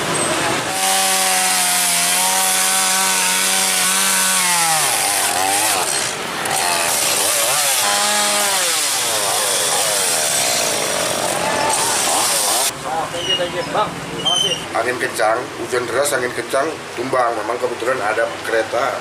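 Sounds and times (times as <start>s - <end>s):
chainsaw revving: 0.6s - 12.7s.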